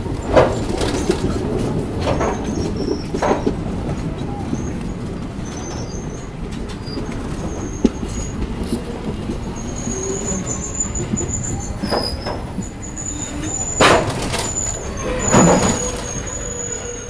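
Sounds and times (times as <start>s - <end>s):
train rumbling on rails: 0.0s - 17.0s
high wheel squeal: 5.4s - 17.0s.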